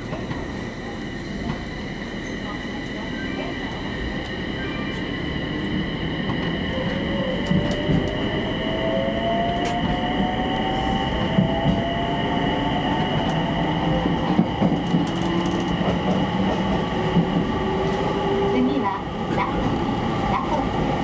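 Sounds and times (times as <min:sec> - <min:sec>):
train rumbling on rails: 0:00.0 - 0:21.0.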